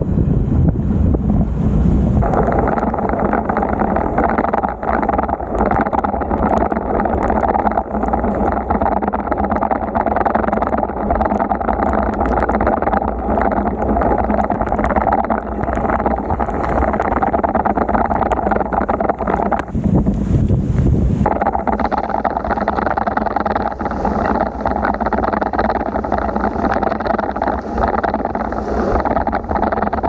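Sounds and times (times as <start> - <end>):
heavy rain: 2.1 - 20.5
small ticks: 2.2 - 30.0.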